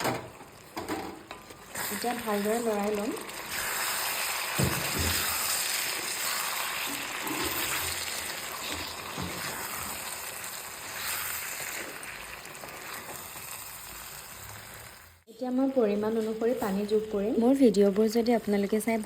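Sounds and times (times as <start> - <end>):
spatula scraping sizzling curry: 1.3 - 15.2.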